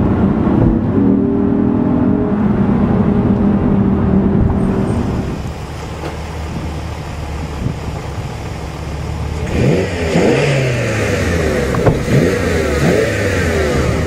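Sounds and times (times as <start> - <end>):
sports car engine revving: 6.5 - 14.0.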